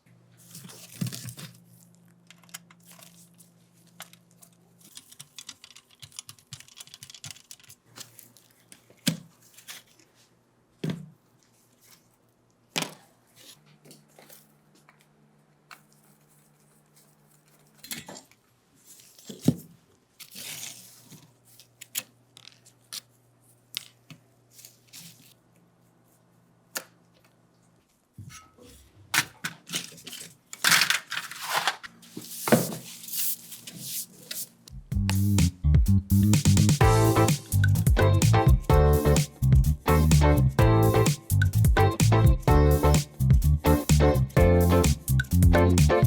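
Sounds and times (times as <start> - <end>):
rustling or scraping: 29.7 - 34.6.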